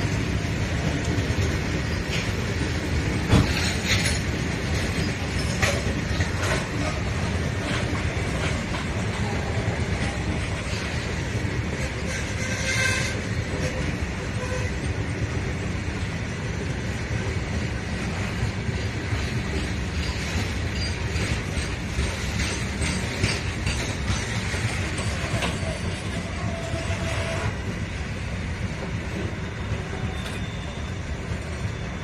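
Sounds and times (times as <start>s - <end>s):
freight train wheels rumbling: 0.0s - 32.0s
train clatter: 0.0s - 32.0s.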